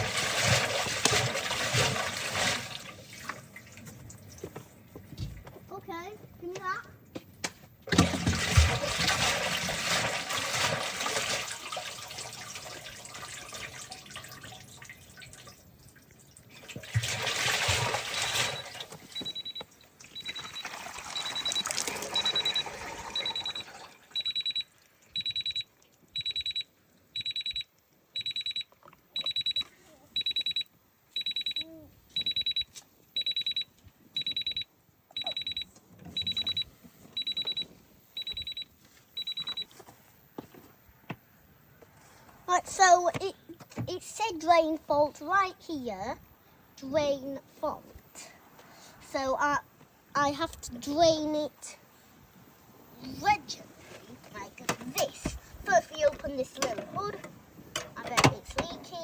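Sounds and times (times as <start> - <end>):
water swishing in washing machine: 0.0 - 4.2, 7.9 - 25.6
washing machine alarm beeping: 17.2 - 39.8, 54.4 - 59.0.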